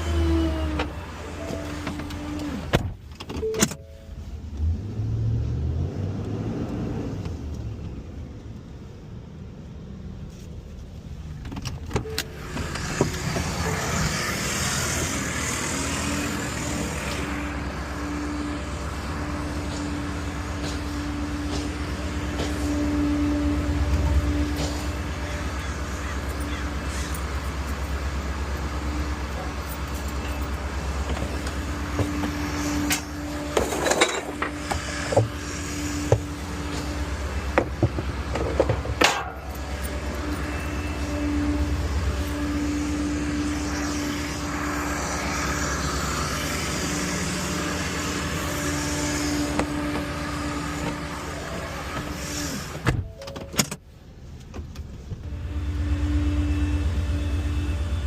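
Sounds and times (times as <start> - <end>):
garbage truck engine running: 11.8 - 53.3, 53.9 - 58.0
knocks and clatter: 36.1 - 39.9.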